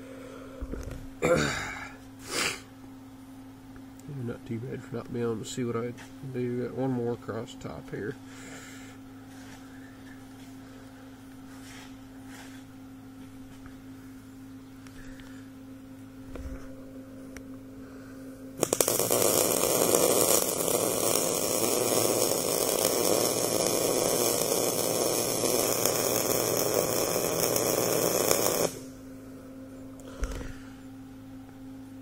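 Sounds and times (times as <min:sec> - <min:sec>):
welder arc crackling: 0:18.6 - 0:29.0.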